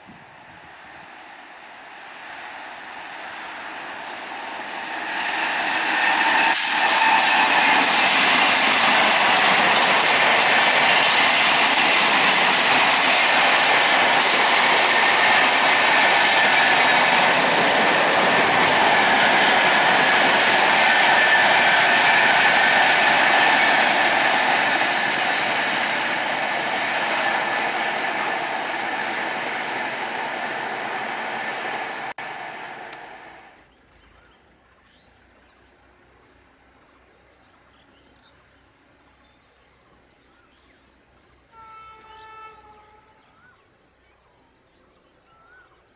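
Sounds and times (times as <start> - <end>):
train wheels rushing on rail: 0.0 - 33.6
clickety-clack over rail joints: 4.0 - 30.0.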